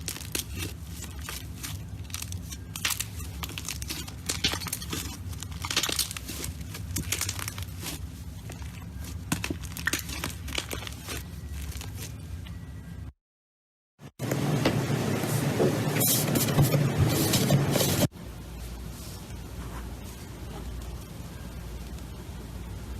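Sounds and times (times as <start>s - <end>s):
steady low hum: 14.2s - 22.9s.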